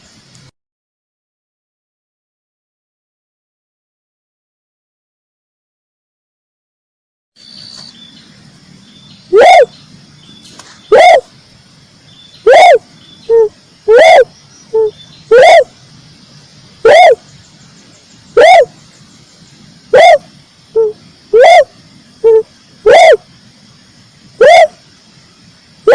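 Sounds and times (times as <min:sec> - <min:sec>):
dove calling: 0:07.4 - 0:11.4, 0:12.0 - 0:25.0.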